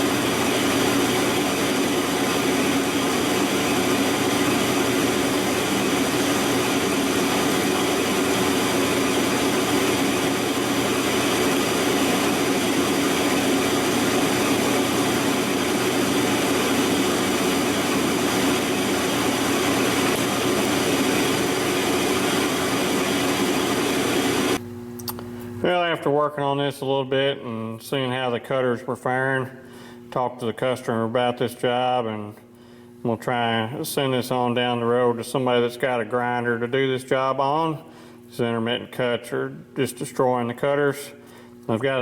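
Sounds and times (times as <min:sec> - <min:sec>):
lathe cutting steel: 0:00.0 - 0:24.6
steady hum: 0:00.0 - 0:42.0.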